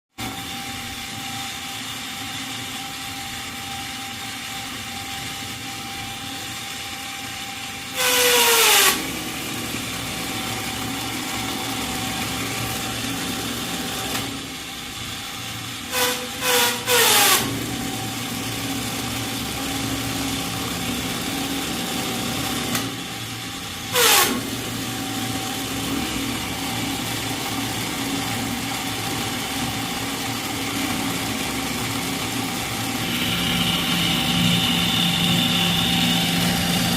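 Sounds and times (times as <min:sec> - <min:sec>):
motor humming: 0:00.6 - 0:36.9.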